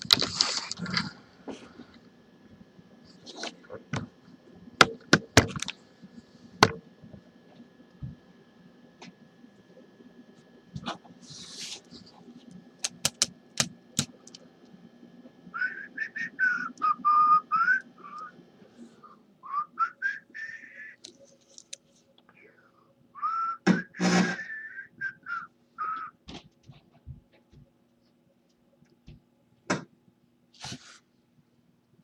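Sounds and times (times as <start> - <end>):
sharp clicks: 12.8 - 14.4
person whistling a tune: 15.6 - 18.3, 19.4 - 21.0, 23.2 - 26.2.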